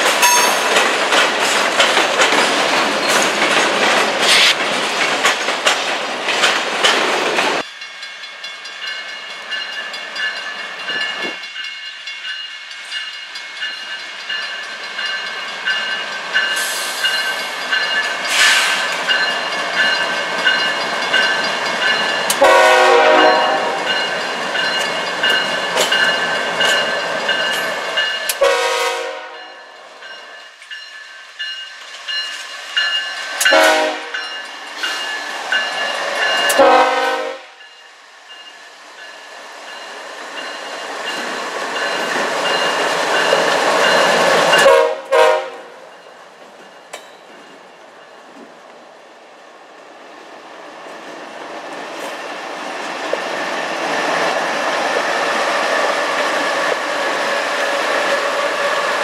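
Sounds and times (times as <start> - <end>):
wheels rolling on rails: 0.0 - 7.7
train air horn blasts: 22.4 - 23.9, 28.4 - 29.5, 33.5 - 34.2, 36.5 - 37.6, 44.6 - 45.8.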